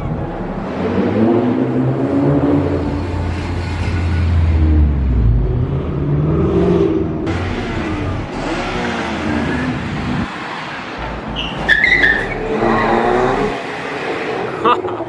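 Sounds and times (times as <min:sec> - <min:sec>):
car engines revving: 0:00.0 - 0:15.0
tire squeal: 0:02.8 - 0:04.8, 0:07.3 - 0:14.6.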